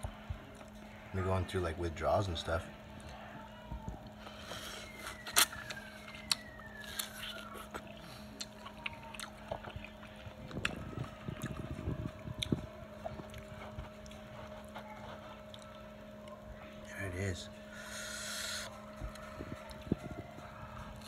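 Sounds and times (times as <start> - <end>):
faint steady hum: 0.0 - 21.0
crunchy biting and chewing: 4.0 - 16.5.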